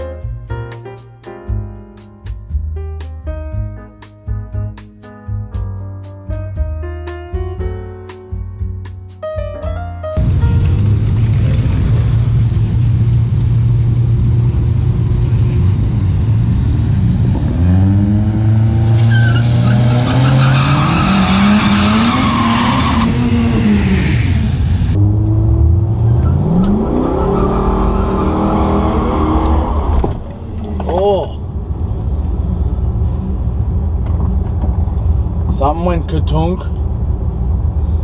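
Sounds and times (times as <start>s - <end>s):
car engine revving hard: 10.2s - 30.0s.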